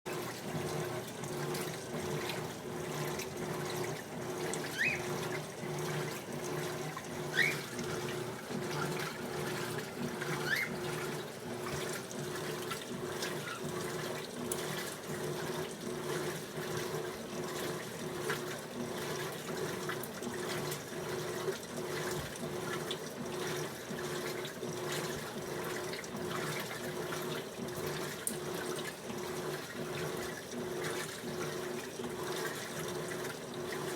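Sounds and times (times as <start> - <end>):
water sloshing in tub: 0.1 - 33.9
short rising squeaks: 4.6 - 5.1, 7.3 - 7.8, 10.3 - 10.9.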